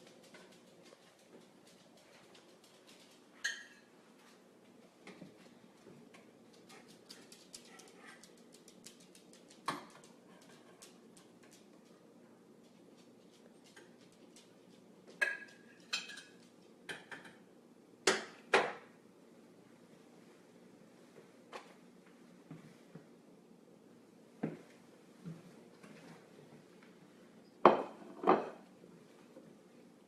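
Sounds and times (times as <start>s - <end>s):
utensils and dishes clinking: 15.2s - 16.4s.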